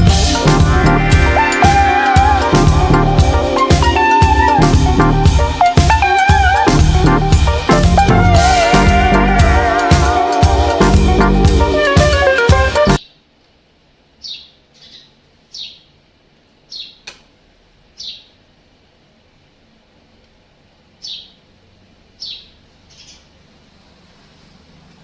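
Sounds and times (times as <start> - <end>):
bird chirps: 14.2 - 15.9, 16.7 - 17.1, 18.0 - 18.4, 21.0 - 21.4, 22.2 - 23.3
sharp click: 17.0 - 17.3.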